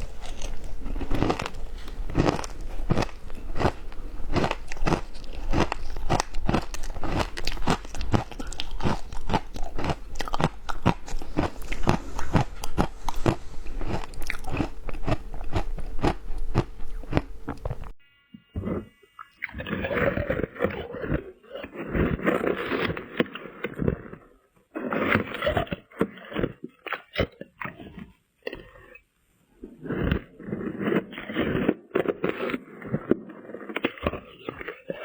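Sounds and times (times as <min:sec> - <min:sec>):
ice crunching between teeth: 0:00.0 - 0:18.0, 0:29.8 - 0:35.0.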